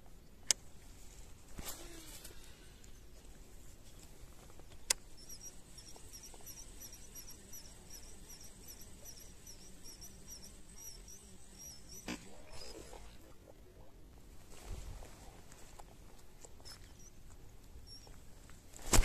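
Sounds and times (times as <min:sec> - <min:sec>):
small bird chirping: 0:04.5 - 0:13.0, 0:16.6 - 0:18.2.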